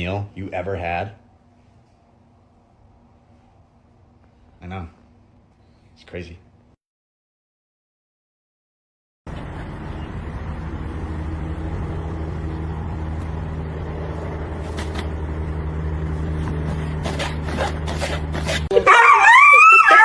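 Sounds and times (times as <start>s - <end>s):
vehicle engine drone: 9.3s - 19.5s.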